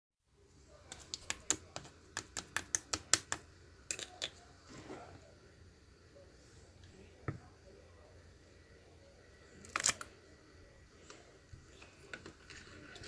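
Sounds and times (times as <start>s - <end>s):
slime squishing: 11.6s - 13.0s.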